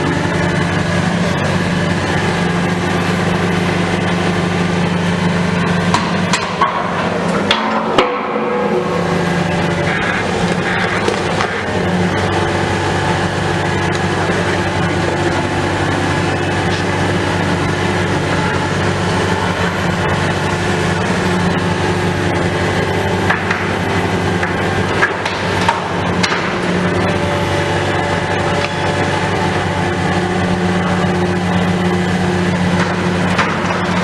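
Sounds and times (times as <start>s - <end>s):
machinery engine drone: 0.0s - 34.0s
sharp knocks: 5.9s - 9.5s, 24.4s - 26.7s.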